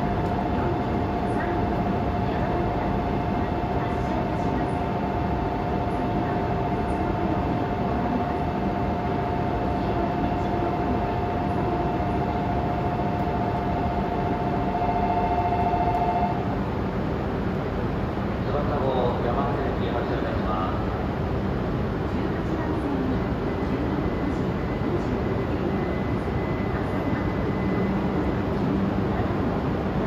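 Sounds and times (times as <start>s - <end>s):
train humming at platform: 0.0s - 30.0s
two-pitch tone: 14.1s - 16.4s.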